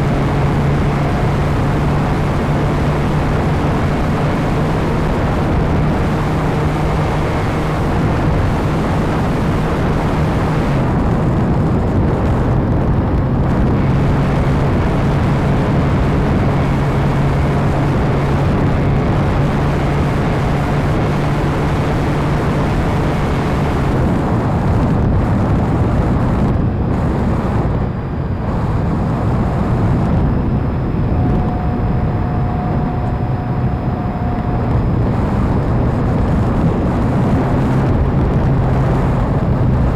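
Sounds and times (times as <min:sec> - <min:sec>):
model airplane propeller drone: 0:00.0 - 0:39.9
rushing wind noise: 0:00.0 - 0:39.9
thin high tone: 0:30.6 - 0:35.8.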